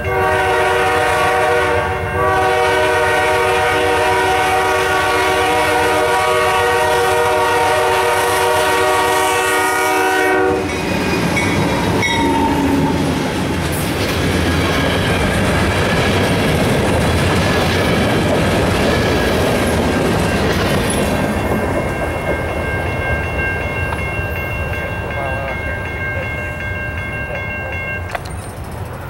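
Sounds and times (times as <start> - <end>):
crossing warning bell ringing: 0.0 - 16.6, 17.3 - 29.0
train wheels rumbling and clacking: 0.0 - 29.0.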